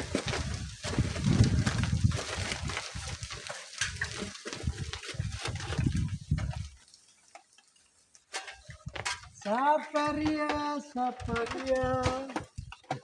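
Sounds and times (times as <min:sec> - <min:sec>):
strong wind buffeting microphone: 0:00.0 - 0:03.3, 0:04.5 - 0:06.8.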